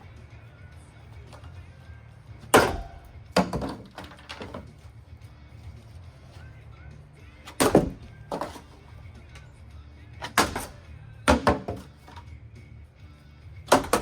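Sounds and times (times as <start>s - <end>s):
chair clattering against ceiling fan: 2.5s - 4.8s.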